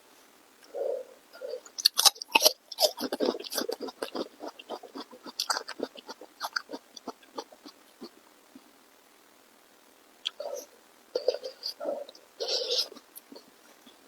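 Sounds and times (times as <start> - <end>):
person chewing and biting food: 1.6 - 8.2.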